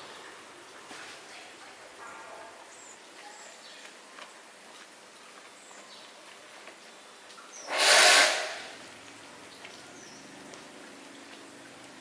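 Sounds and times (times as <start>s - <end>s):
loud hiss: 7.7s - 8.8s.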